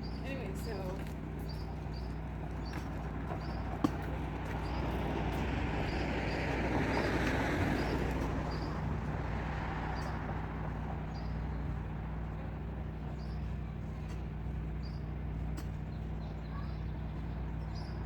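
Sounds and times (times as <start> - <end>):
car passing by: 4.6 - 11.3.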